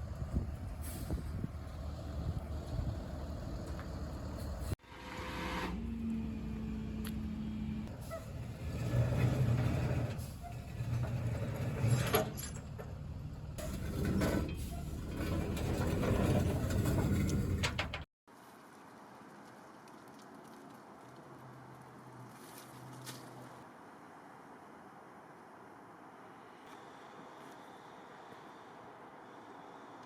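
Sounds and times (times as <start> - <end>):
truck engine rumbling: 0.0 - 18.1.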